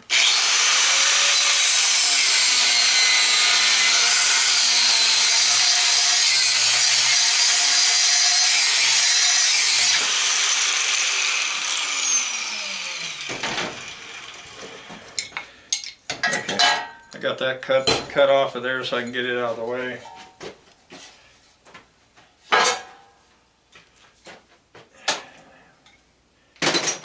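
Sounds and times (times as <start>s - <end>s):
power tool cutting: 0.0s - 15.0s.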